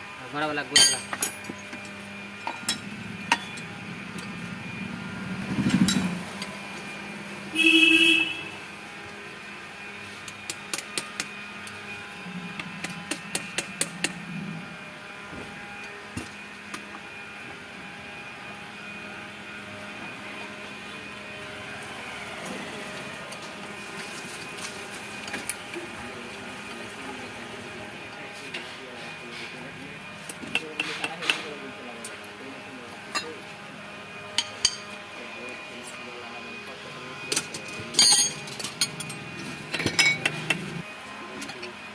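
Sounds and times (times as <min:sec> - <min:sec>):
steady background hum: 0:00.0 - 0:41.9
horn blast: 0:07.4 - 0:08.7
hand tools clicking on metal: 0:37.3 - 0:40.7.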